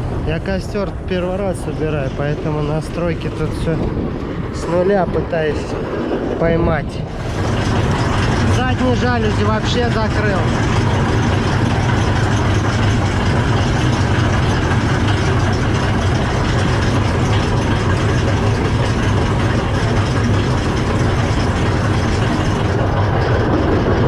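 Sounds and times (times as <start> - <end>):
combine harvester droning: 0.0 - 24.0.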